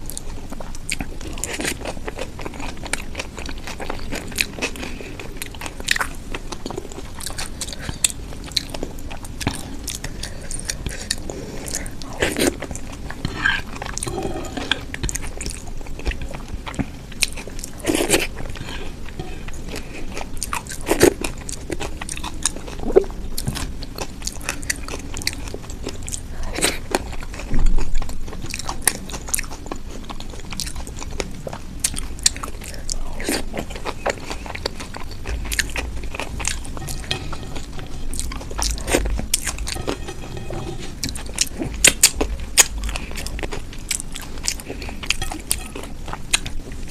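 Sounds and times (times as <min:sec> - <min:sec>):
crunching and chewing: 0:00.0 - 0:46.9.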